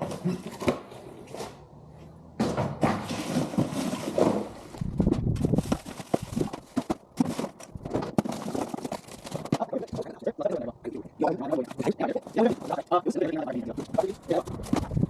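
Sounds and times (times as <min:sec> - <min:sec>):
junk clattering and thumping: 0:02.3 - 0:10.0.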